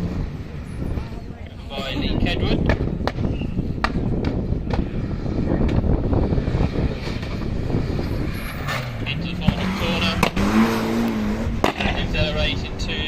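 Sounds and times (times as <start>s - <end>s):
wind buffeting microphone: 0.0s - 13.0s
rally car engine running: 4.1s - 13.0s.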